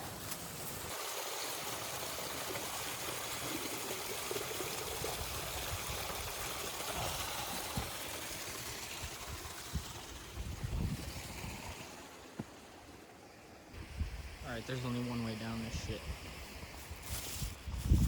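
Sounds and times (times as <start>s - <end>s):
water running: 0.9s - 13.6s.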